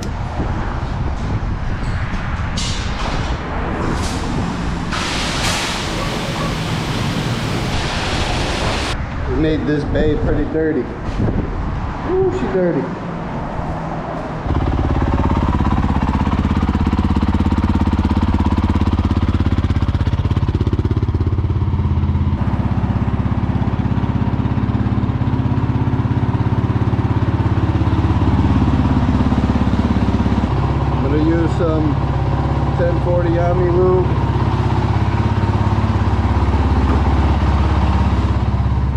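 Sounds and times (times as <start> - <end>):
motorcycle engine idling: 14.5 - 38.9.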